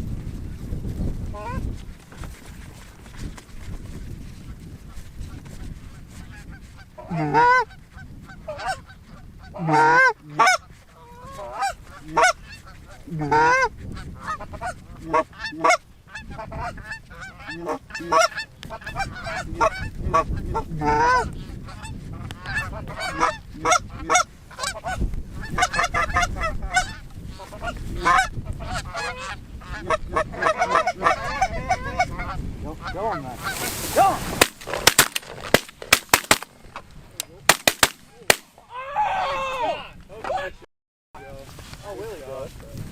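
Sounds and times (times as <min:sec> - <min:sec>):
geese honking: 0:06.3 - 0:36.5.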